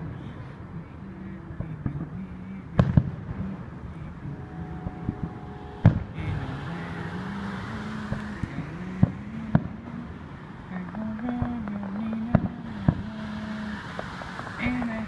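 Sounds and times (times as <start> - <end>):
steady low hum: 0.0 - 15.0
distant fireworks bangs: 1.5 - 15.0
fireworks crackling hiss: 5.5 - 15.0.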